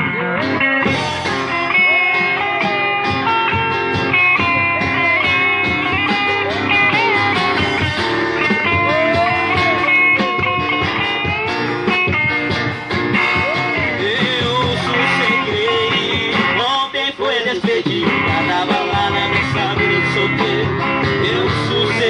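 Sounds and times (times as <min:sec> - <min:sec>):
live band music: 0:00.0 - 0:22.0
singing: 0:13.4 - 0:22.0.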